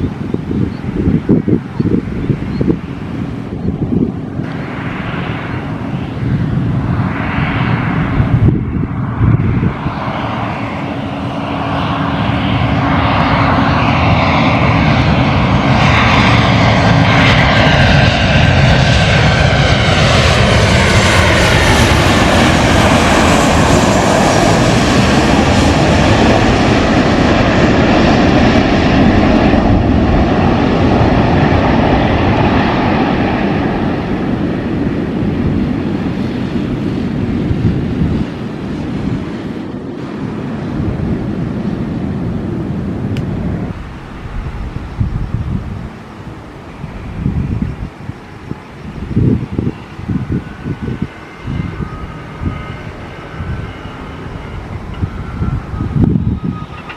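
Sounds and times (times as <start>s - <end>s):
airliner engine noise: 0.0s - 56.9s
whining tones gliding down: 42.9s - 56.9s.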